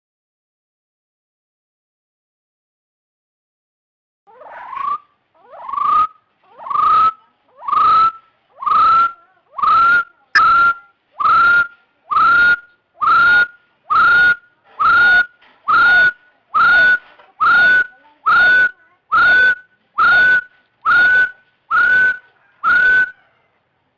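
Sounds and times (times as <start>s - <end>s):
partridge whistling calls: 19.1s - 23.3s.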